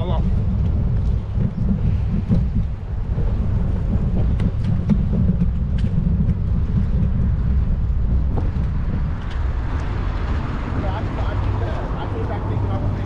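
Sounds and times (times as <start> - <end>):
wind and road rumble: 0.0 - 13.0.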